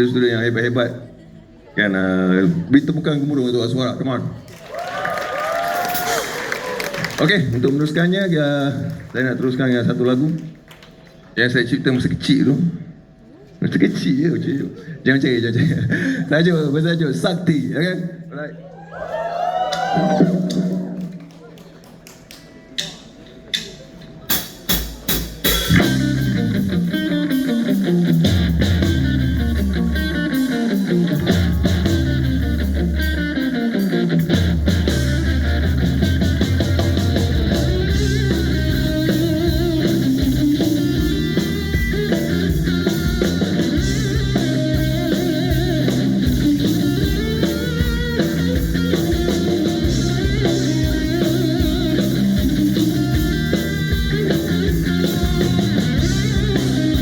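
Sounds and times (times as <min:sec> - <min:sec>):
rock band playing: 0:04.8 - 0:07.1, 0:19.6 - 0:21.3, 0:24.3 - 0:57.0
drum hits: 0:24.3 - 0:33.4.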